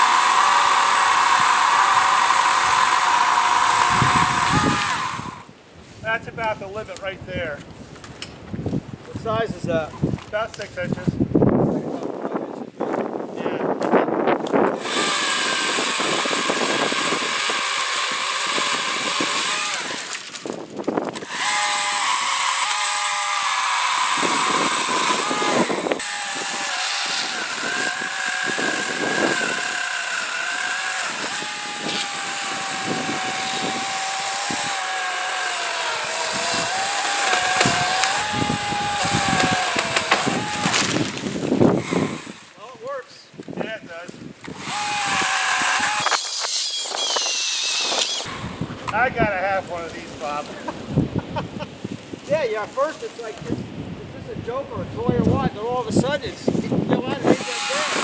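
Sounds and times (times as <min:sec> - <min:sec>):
electric chainsaw cutting wood: 0:00.0 - 0:05.5, 0:14.7 - 0:42.6, 0:44.4 - 0:49.0, 0:57.0 - 0:58.0.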